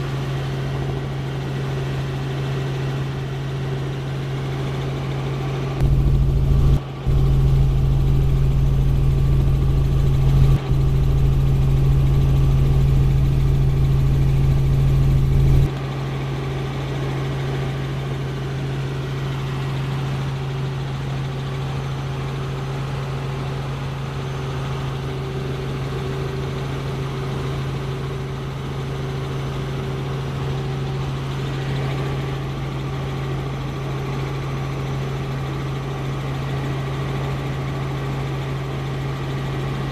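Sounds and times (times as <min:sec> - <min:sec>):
helicopter drone: 0:00.0 - 0:39.9
heavy low rumble: 0:05.8 - 0:15.7.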